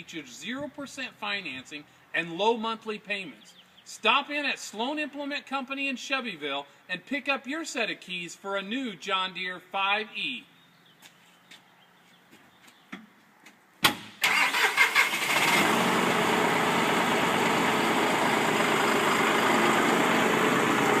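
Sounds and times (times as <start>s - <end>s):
diesel tractor engine starting: 13.9s - 21.0s.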